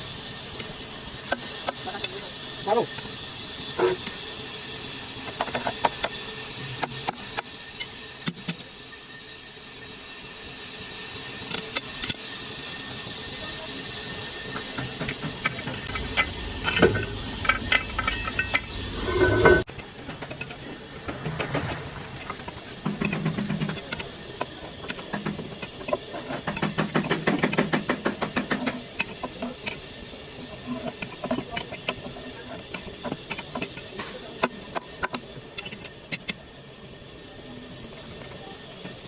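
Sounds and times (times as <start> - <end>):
low rumble: 16.0 - 23.8.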